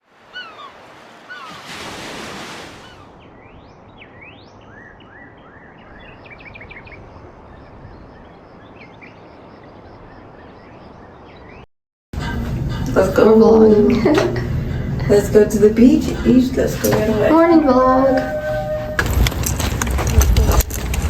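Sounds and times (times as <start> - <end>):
surf washing: 0.0 - 3.4
small birds chirping: 0.2 - 1.8, 2.8 - 11.7.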